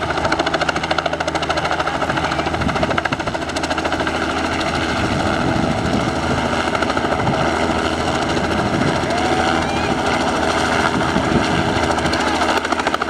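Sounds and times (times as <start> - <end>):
helicopter engine drone: 0.0 - 13.0
helicopter rotor chopping: 0.0 - 13.0.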